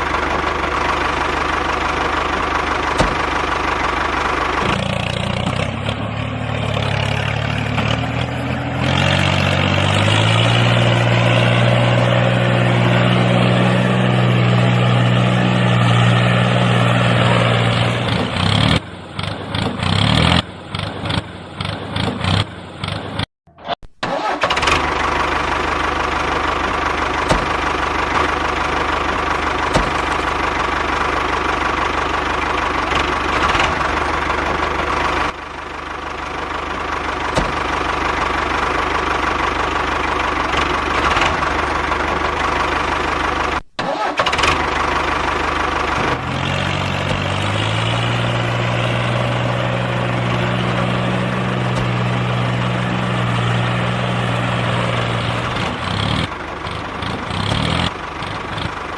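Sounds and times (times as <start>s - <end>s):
lower steady engine note: 0.0s - 23.2s, 24.1s - 58.9s
tractor engine running: 0.0s - 58.9s.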